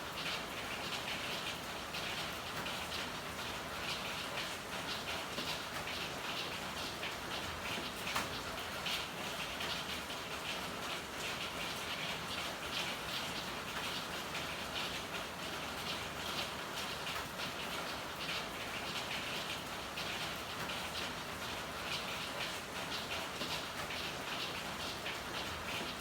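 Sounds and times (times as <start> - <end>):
steady rain falling: 0.0 - 26.0
raindrops hitting: 16.6 - 26.0.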